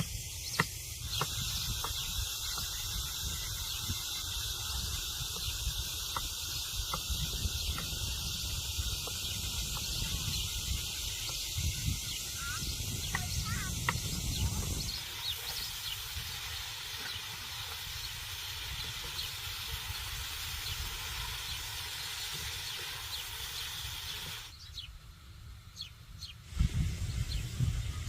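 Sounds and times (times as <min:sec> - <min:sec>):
faint bird chirps: 0:00.0 - 0:17.4
steady hiss: 0:00.0 - 0:25.7, 0:26.3 - 0:28.0.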